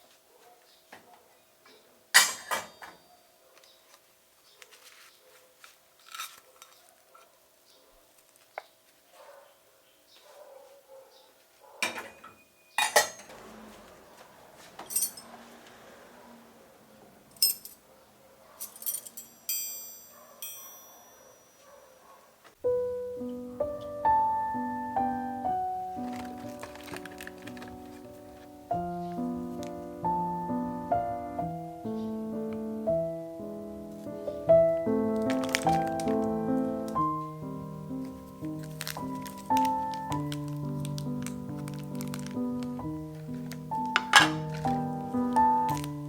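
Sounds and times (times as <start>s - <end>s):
dishes and cutlery clinking: 2.2s - 3.0s, 11.8s - 13.4s, 43.9s - 44.8s
bright ringing clink: 18.8s - 21.6s.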